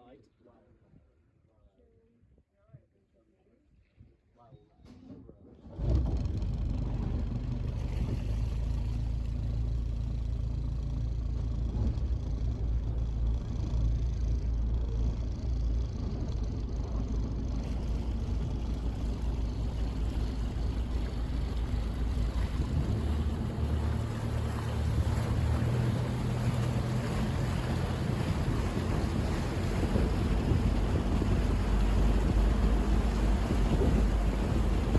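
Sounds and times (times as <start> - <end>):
water against hull: 4.9 - 34.9
boat engine running: 5.7 - 34.9
wind rumble on microphone: 5.8 - 34.9.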